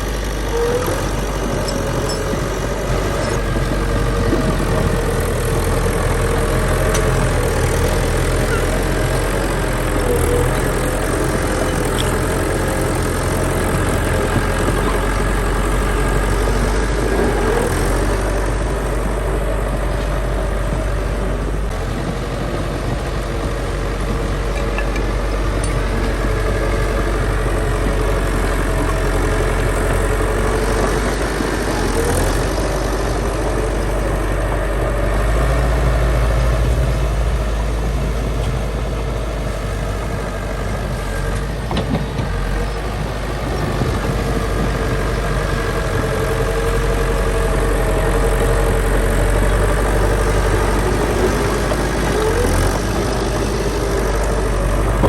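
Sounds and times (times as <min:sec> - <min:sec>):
heavy machinery diesel engines: 0:00.0 - 0:55.0.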